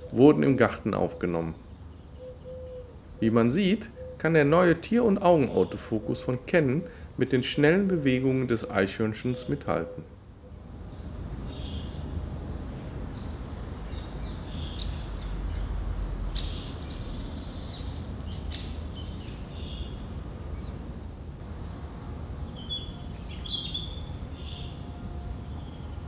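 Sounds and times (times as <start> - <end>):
birds chirping: 0.0 - 12.2, 12.8 - 15.8, 16.4 - 26.0
low background rumble: 10.2 - 26.0.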